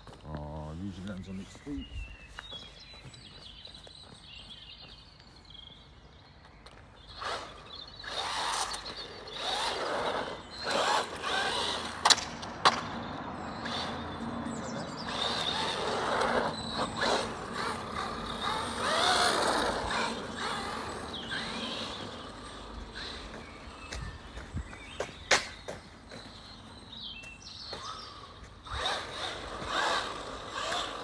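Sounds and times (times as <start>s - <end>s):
electric toy car motor whine: 7.0s - 26.6s, 27.6s - 31.0s
toy cars knocking: 8.1s - 14.0s, 15.0s - 23.7s.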